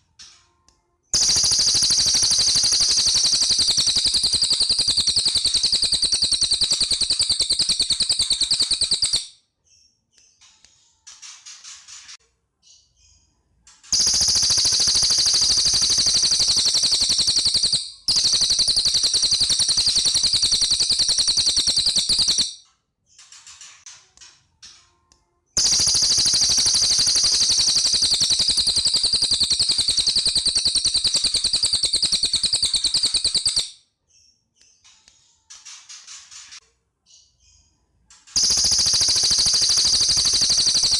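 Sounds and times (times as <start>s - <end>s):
bird rapid rattling trill: 1.2s - 9.3s, 13.9s - 22.6s, 25.6s - 33.8s, 38.3s - 40.9s.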